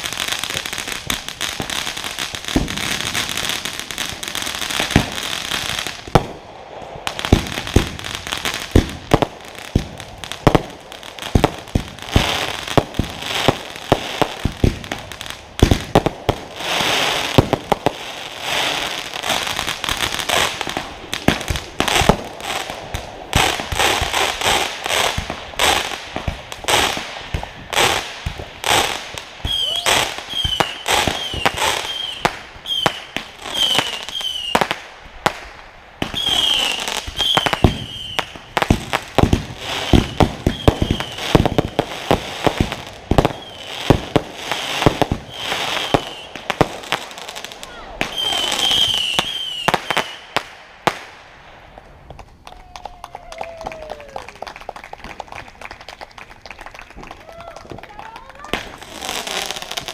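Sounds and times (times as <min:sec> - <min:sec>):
high firework chirps: 0:00.0 - 0:52.1
fireworks thumps and bangs: 0:02.5 - 0:03.4, 0:04.1 - 0:05.3, 0:07.1 - 0:18.0, 0:19.3 - 0:47.0, 0:51.7 - 0:52.6.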